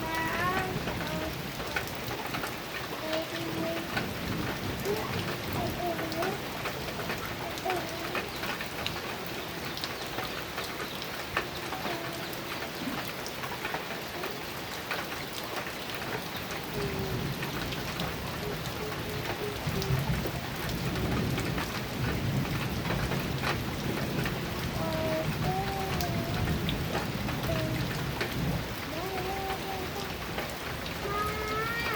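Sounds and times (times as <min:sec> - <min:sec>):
heavy rain on a metal roof: 0:00.0 - 0:31.9
low thunder rumble: 0:16.6 - 0:31.9.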